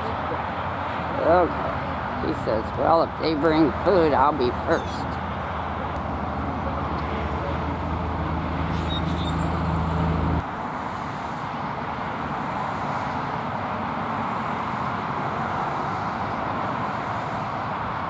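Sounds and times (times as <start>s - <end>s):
road traffic noise: 0.0s - 18.0s
vehicle engine humming: 0.0s - 18.0s.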